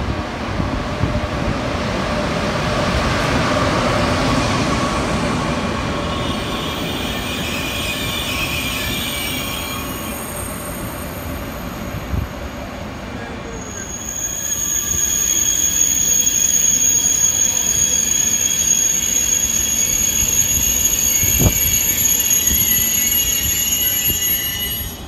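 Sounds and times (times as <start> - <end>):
train wheels rumbling on rails: 0.0 - 25.0
high squealing tones: 6.1 - 12.1, 13.5 - 25.0.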